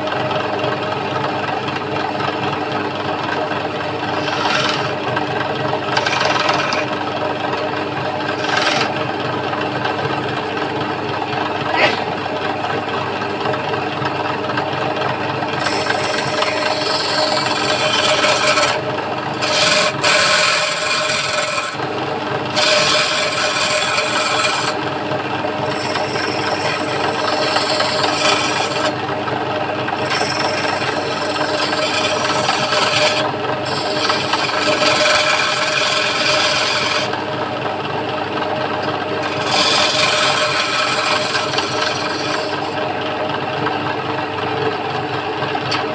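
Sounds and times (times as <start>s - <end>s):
lathe motor hum: 0.0s - 45.8s
chisel rasping on wood: 3.4s - 9.2s, 15.3s - 37.5s, 38.6s - 43.0s.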